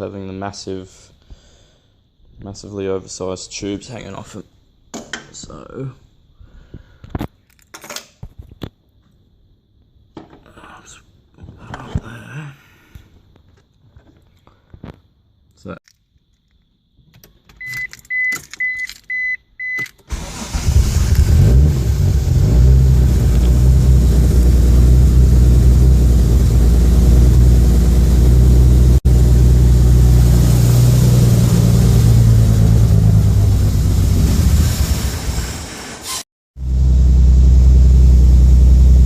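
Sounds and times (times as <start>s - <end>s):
car engine starting and idling: 20.1s - 35.9s, 36.6s - 39.0s.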